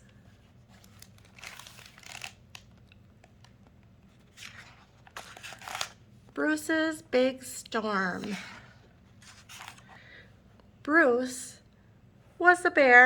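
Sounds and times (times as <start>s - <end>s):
book pages rustling: 0.1s - 6.3s, 9.0s - 10.1s.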